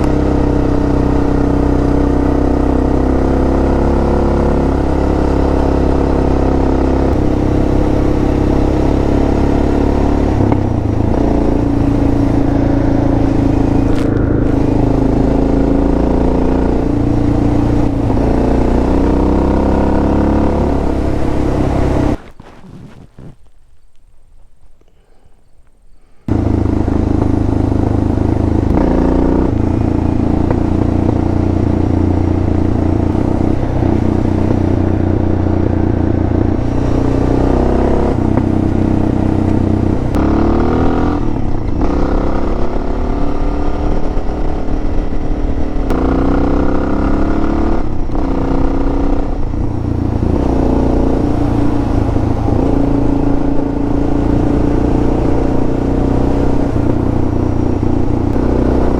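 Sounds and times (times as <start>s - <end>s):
motorcycle engine accelerating: 0.0s - 23.4s, 26.2s - 58.9s.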